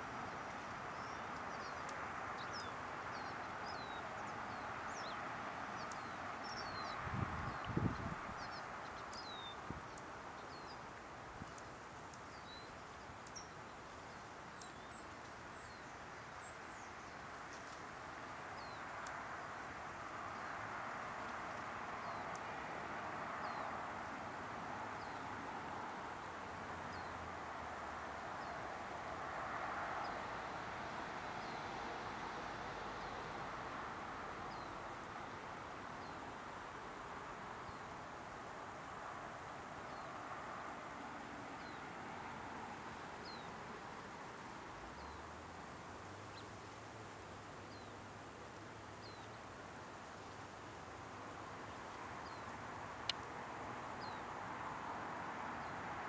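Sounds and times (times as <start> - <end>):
small birds chirping: 0.0 - 22.6, 23.3 - 24.2, 26.1 - 27.6, 31.4 - 31.8, 34.5 - 35.0, 41.6 - 43.6, 44.9 - 45.3, 48.9 - 53.3, 53.9 - 54.4
outdoor background hush: 0.0 - 56.0.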